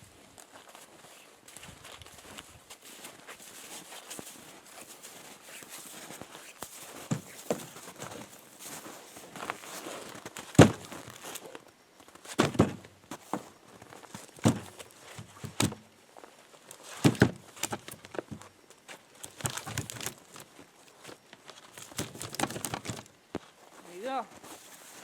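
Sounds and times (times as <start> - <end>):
crunching footsteps: 0.0 - 25.0
firewood thunking down: 10.3 - 11.4, 12.2 - 13.5, 14.1 - 15.9, 16.8 - 18.5, 19.2 - 20.4, 21.8 - 23.1.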